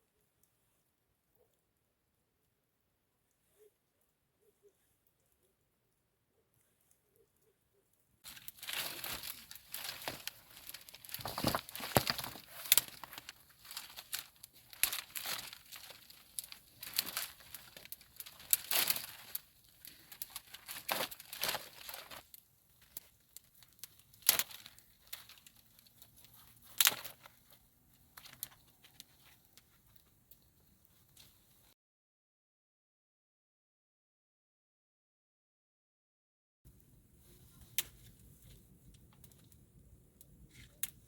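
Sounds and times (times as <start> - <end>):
dry material crinkling and tearing: 8.2 - 31.6.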